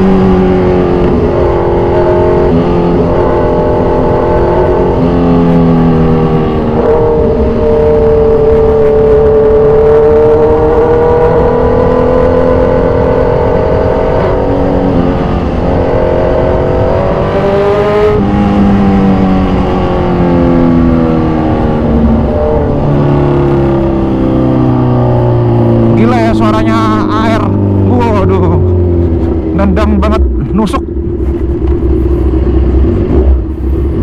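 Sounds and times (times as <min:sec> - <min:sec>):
motorcycle engine accelerating: 0:00.0 - 0:34.0.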